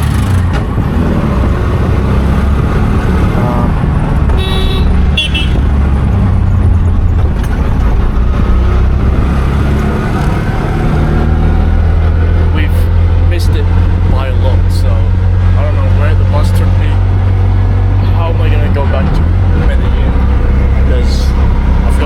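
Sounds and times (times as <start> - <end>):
bus engine droning: 0.0 - 22.0
vehicle horn toots: 4.3 - 5.8.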